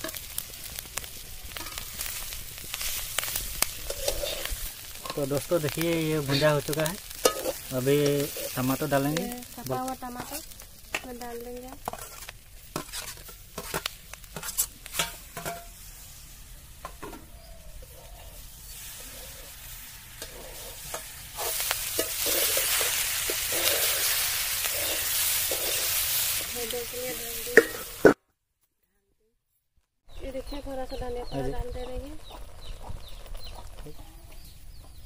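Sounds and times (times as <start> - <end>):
sizzling in hot oil: 0.0 - 28.2, 30.2 - 35.0
metal spatula scraping a pan: 1.5 - 9.0, 11.8 - 15.9, 18.0 - 28.2.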